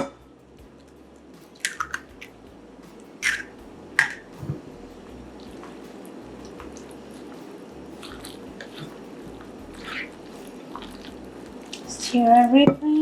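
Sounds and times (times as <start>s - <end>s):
wet squishing: 1.6s - 2.4s, 3.2s - 12.6s.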